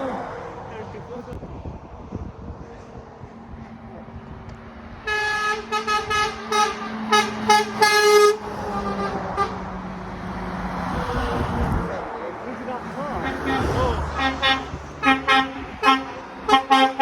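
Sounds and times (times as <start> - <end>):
lorry engine passing: 2.9 - 17.0
truck air horn blasts: 5.1 - 9.6, 13.2 - 17.0.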